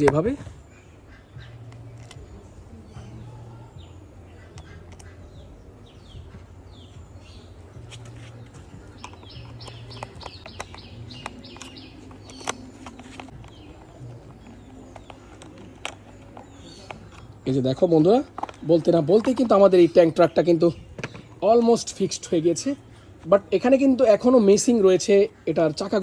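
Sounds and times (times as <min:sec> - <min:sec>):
bird chirps: 0:00.6 - 0:26.0.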